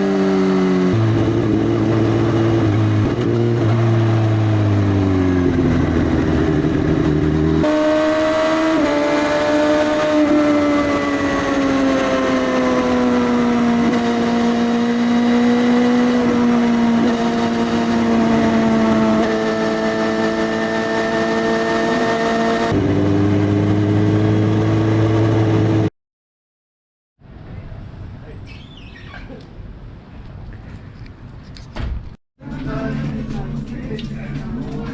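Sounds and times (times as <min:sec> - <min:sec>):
loud motorcycle engine: 0:00.0 - 0:25.9.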